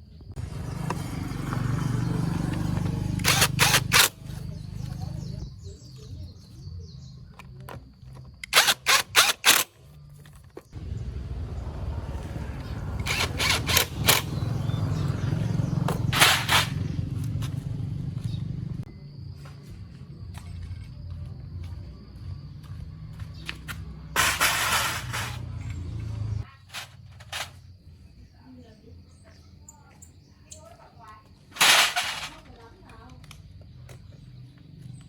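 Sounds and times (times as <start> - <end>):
small engine running: 0.4 - 5.4, 8.5 - 9.7, 10.8 - 18.9, 24.1 - 26.5
sharp loud clicks: 3.2 - 4.2, 8.4 - 9.7, 13.0 - 14.5.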